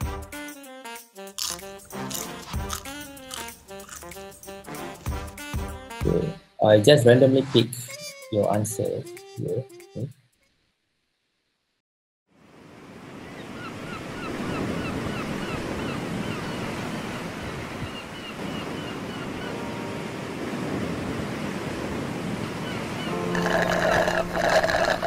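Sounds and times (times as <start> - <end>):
ocean surf washing onto beach: 12.4 - 25.0.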